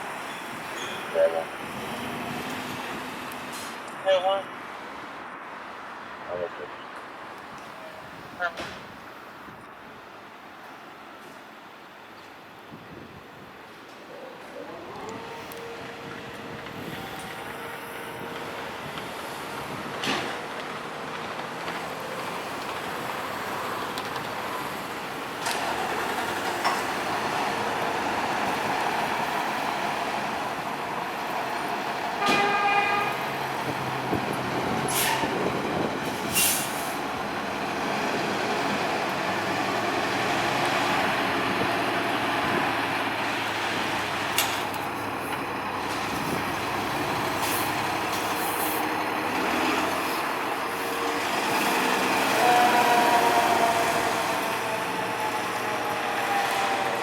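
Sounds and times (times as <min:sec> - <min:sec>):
fire engine driving: 0:00.0 - 0:12.6, 0:13.2 - 0:57.0
horn blast: 0:32.2 - 0:33.3.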